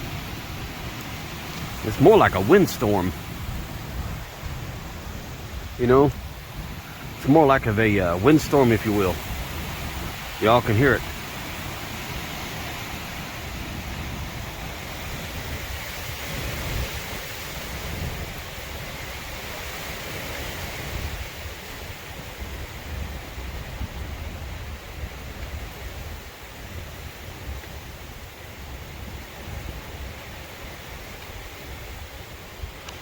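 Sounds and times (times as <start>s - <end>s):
strong wind blowing: 0.0s - 33.0s.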